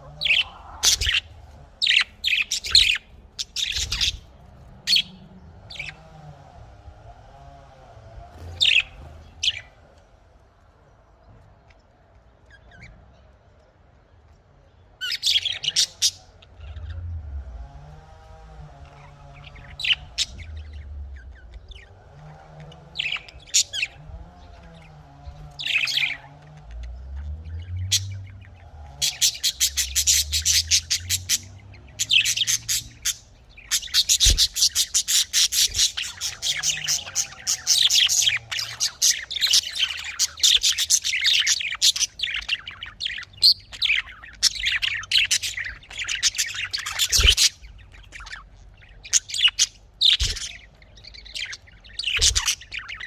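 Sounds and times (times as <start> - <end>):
parrots chirping and chattering: 0.0 - 53.0.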